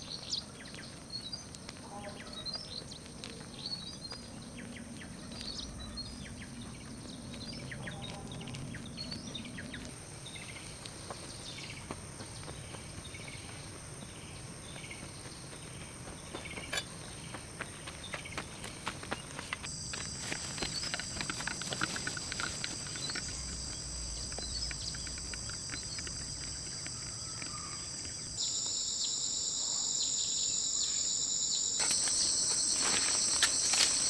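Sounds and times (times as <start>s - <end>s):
insects droning: 0.0s - 34.0s
bird chirps: 22.9s - 34.0s.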